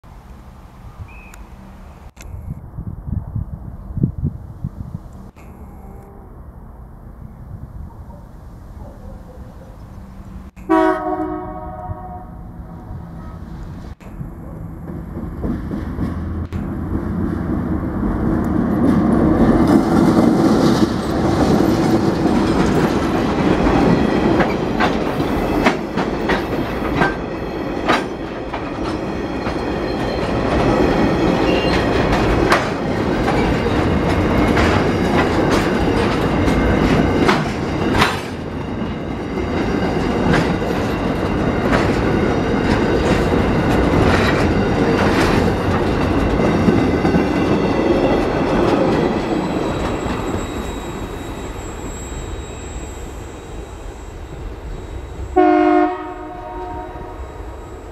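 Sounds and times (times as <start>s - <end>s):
diesel locomotive engine rumble: 0.0s - 57.9s
wagon wheels clacking on rail joints: 14.2s - 50.8s.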